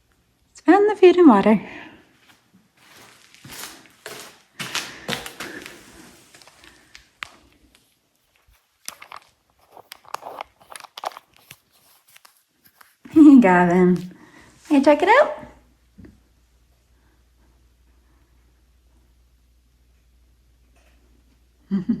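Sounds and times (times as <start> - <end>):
rustling and scraping: 2.2 - 14.1.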